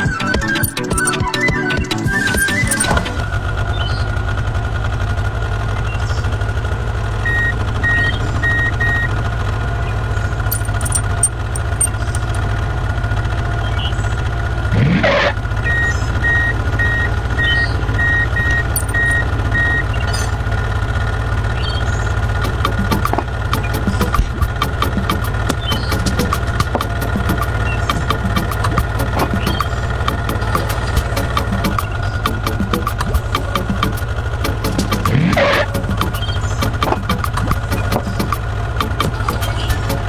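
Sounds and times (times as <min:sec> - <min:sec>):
heavy construction vehicle engine: 0:00.0 - 0:40.0
reversing alarm beeping: 0:07.2 - 0:09.1, 0:15.6 - 0:20.3.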